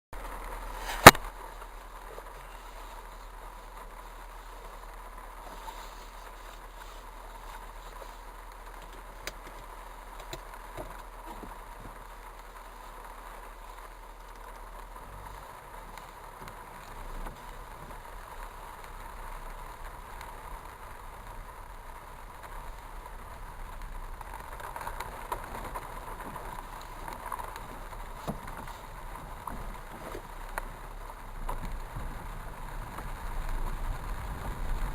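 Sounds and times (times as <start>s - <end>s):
heavy rain: 0.1s - 34.9s
sharp click: 0.8s - 1.3s.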